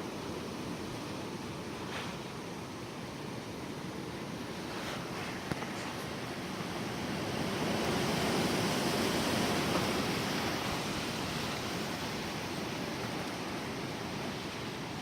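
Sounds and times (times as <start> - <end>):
gusty wind rushing: 4.3 - 15.0.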